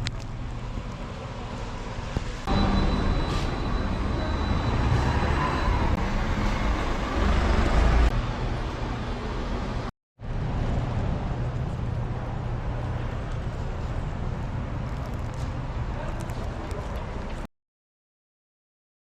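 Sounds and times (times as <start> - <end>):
faint high whine: 2.5 - 6.9
cooling fan: 6.0 - 17.4.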